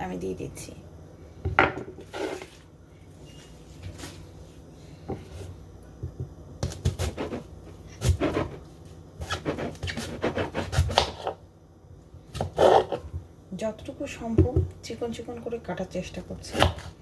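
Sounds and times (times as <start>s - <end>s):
knife chopping on cutting board: 6.6s - 8.6s, 9.2s - 11.4s.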